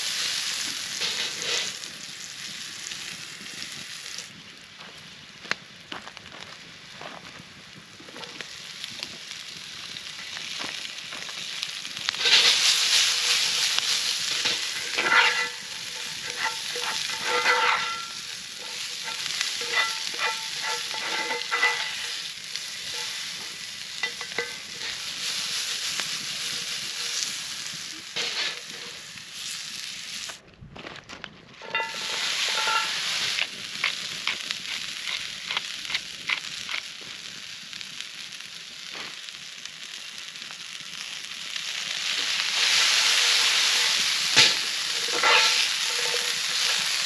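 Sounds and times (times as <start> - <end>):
vegetables sizzling in hot oil: 0.0 - 30.4, 31.6 - 47.0
metal spatula scraping pan: 0.1 - 1.8, 12.2 - 27.4, 28.2 - 29.0, 31.6 - 35.7, 42.3 - 47.0.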